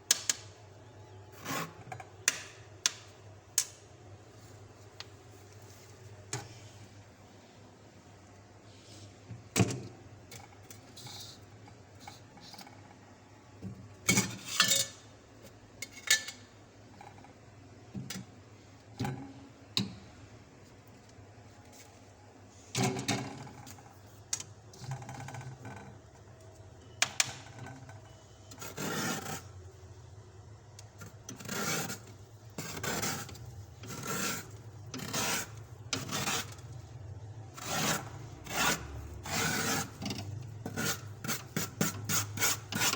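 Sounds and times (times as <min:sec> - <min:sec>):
frost being scraped: 0:31.3 - 0:36.6, 0:37.6 - 0:40.0, 0:40.7 - 0:42.9.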